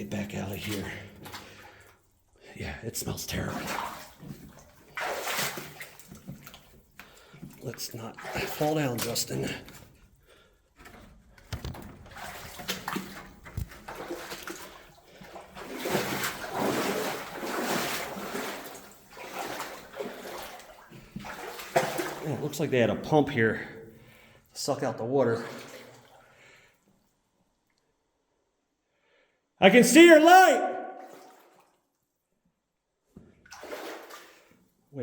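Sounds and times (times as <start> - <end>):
boots splashing through shallow water: 3.5 - 6.8, 11.8 - 22.2, 25.4 - 26.0, 33.5 - 34.4.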